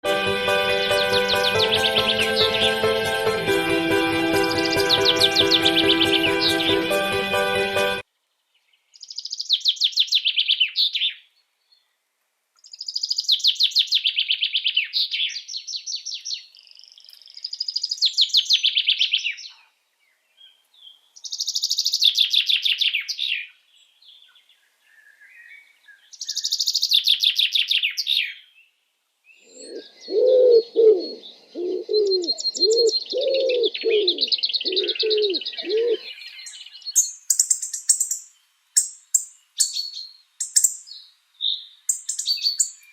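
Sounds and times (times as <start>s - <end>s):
small birds singing fast trills: 0.6s - 3.5s, 4.1s - 7.2s, 8.7s - 11.8s, 12.6s - 19.6s, 20.3s - 28.7s, 31.1s - 42.9s
low cooing notes: 29.6s - 36.1s.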